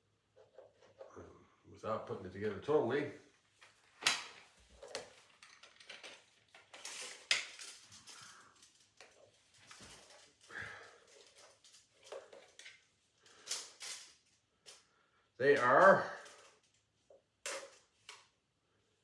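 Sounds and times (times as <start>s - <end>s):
rustling: 3.3s - 17.1s
plastic parts clicking and clattering: 3.6s - 14.9s, 15.6s - 18.4s.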